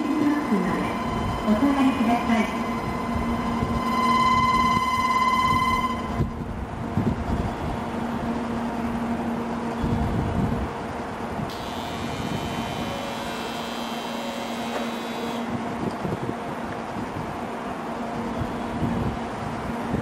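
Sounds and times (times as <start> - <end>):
train electric hum: 0.0 - 20.0
high whining tones: 0.9 - 6.4, 11.5 - 15.6.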